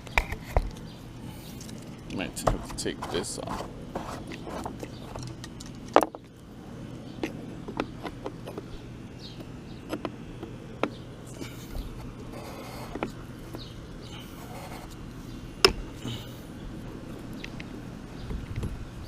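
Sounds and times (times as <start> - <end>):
low steady hum: 0.0 - 19.0
tools and parts clinking: 4.3 - 6.3.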